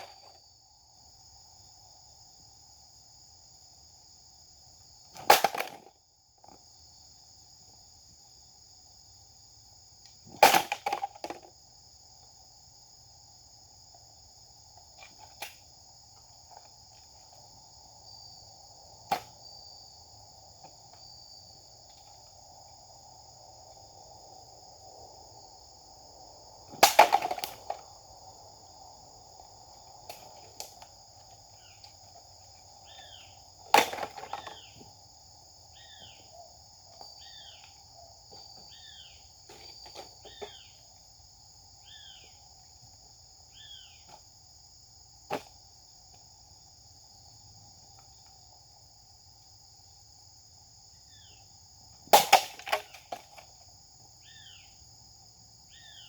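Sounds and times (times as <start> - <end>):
insects trilling: 0.0 - 56.0
bird chirping: 32.8 - 33.4, 35.7 - 36.5.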